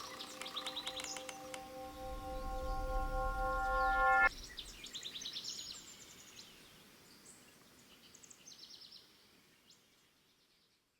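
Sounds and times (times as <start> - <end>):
birds chirping in trills: 0.0 - 5.9
held musical note: 0.8 - 4.7.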